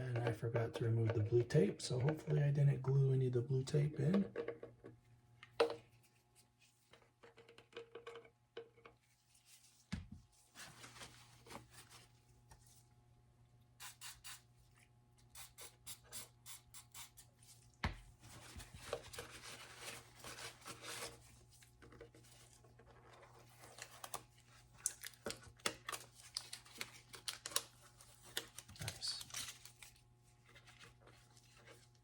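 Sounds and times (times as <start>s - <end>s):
rubbing and scratching at workbench: 18.3s - 23.8s.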